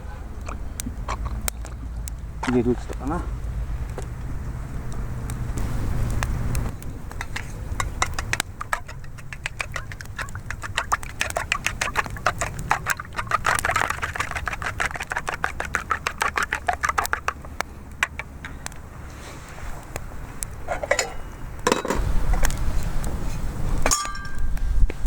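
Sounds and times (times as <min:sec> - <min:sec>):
whisking eggs in a bowl: 0:07.0 - 0:18.4.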